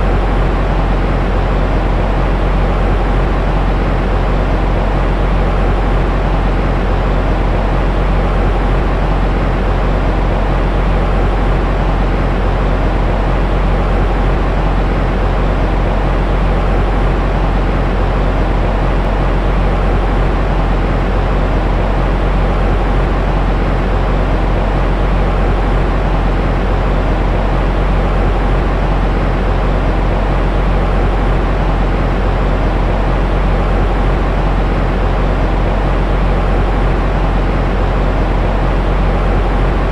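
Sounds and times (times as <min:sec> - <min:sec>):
low rumbling white noise: 0:00.0 - 0:39.9.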